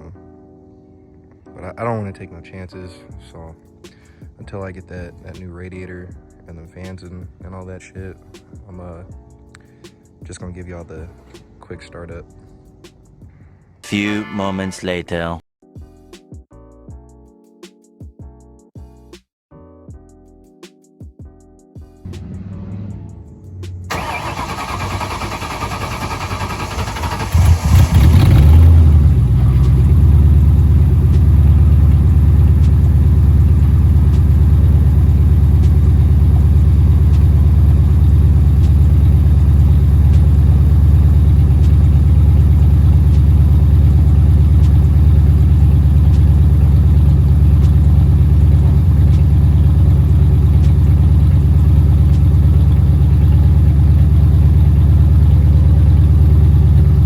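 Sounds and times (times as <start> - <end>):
vee eight engine starting and idling: 22.1 - 57.0.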